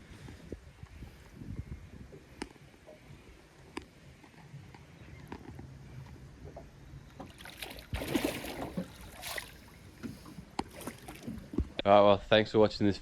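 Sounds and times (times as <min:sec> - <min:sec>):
water splashing: 0:07.1 - 0:11.8.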